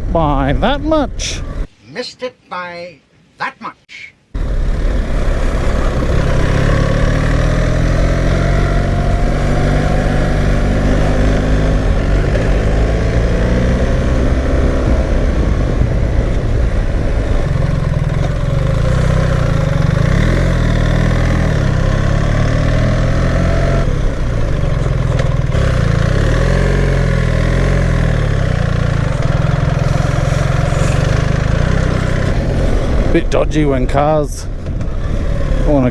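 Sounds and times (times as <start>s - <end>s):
motorcycle engine running: 4.4s - 33.1s.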